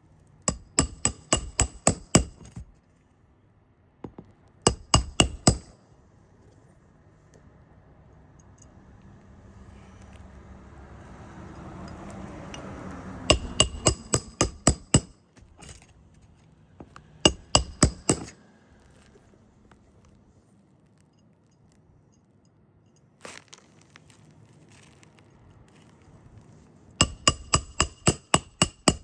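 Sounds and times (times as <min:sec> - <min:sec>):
hammer driving nails: 0:00.5 - 0:02.7, 0:04.1 - 0:05.8, 0:13.3 - 0:15.8, 0:17.3 - 0:18.4, 0:27.0 - 0:29.0.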